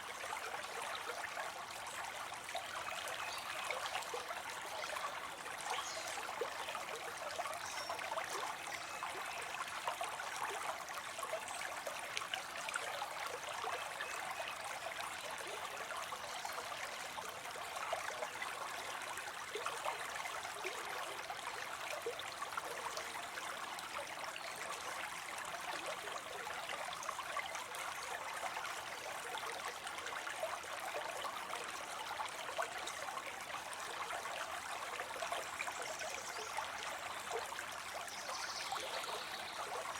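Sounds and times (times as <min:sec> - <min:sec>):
small waterfall splashing into pond: 0:00.0 - 0:39.9.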